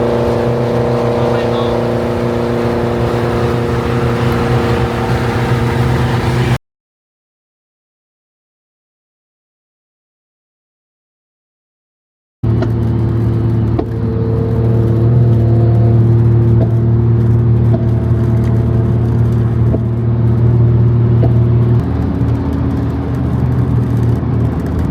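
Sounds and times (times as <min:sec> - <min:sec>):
car engine running: 0:00.0 - 0:06.6, 0:12.4 - 0:24.9.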